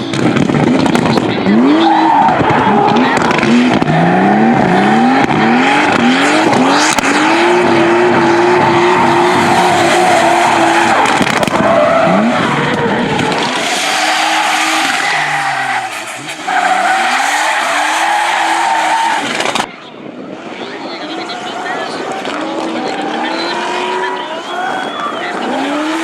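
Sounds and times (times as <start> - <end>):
car engine revving hard: 0.3 - 19.6, 22.0 - 26.0
tyres squealing: 1.5 - 19.7.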